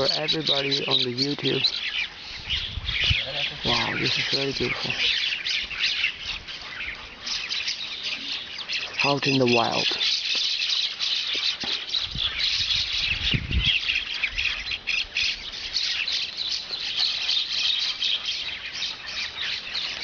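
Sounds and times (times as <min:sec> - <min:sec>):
low rumble on microphone: 0:02.4 - 0:04.9, 0:12.1 - 0:14.5
mynas chattering: 0:03.1 - 0:05.3.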